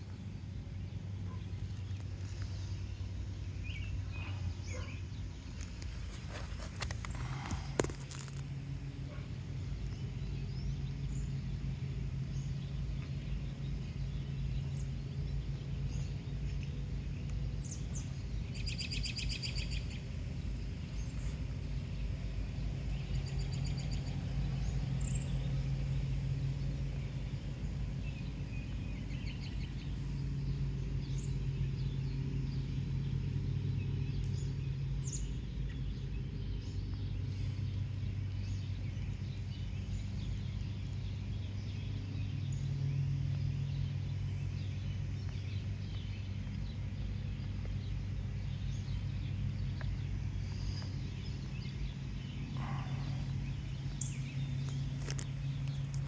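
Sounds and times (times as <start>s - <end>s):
steady low hum: 0.0s - 56.0s
bird chirps: 1.2s - 8.4s, 12.3s - 20.2s, 34.0s - 56.0s.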